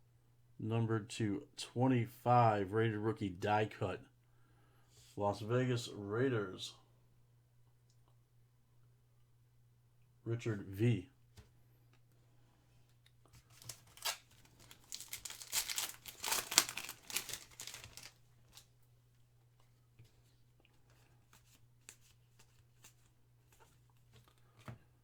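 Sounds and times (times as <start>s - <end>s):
foil wrapper tearing and crinkling: 13.4s - 18.7s.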